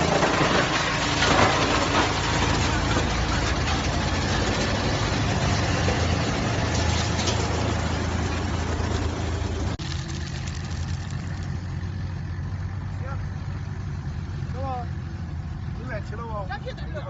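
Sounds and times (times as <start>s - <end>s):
wood chipper grinding wood: 0.0s - 12.4s.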